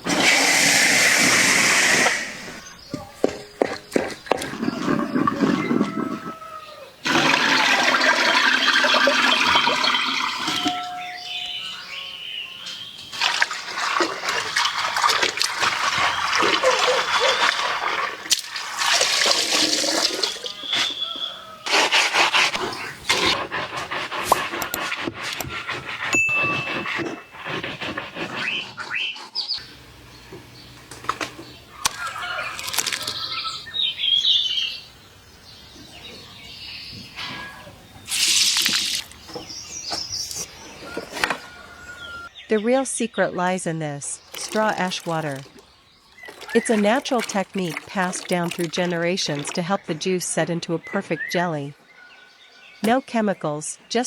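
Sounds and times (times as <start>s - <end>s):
water sloshing and splashing: 0.0s - 6.4s, 7.0s - 11.5s, 13.0s - 23.4s, 31.0s - 33.6s, 38.0s - 41.6s, 44.0s - 50.5s
birds chirping faintly: 2.3s - 15.0s, 19.9s - 21.7s, 22.3s - 54.0s.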